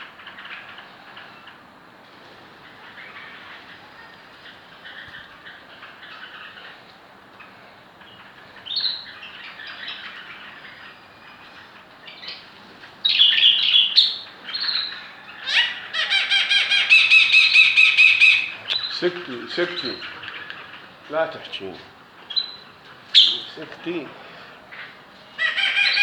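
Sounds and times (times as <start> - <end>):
birds chirping: 2.3 - 26.0
birds squawking: 8.2 - 26.0
shrill bird calls: 13.0 - 21.6, 22.3 - 23.6, 24.8 - 26.0.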